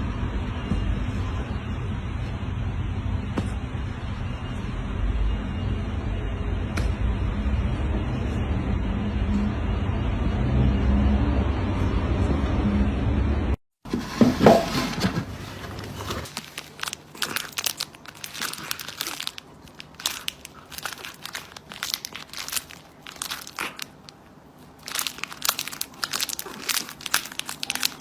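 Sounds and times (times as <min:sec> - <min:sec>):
crinkling and crackling: 0:14.0 - 0:28.0.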